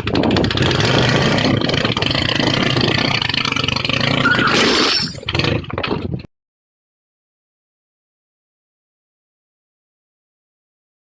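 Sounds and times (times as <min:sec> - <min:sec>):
vehicle engine running: 0:00.0 - 0:04.5.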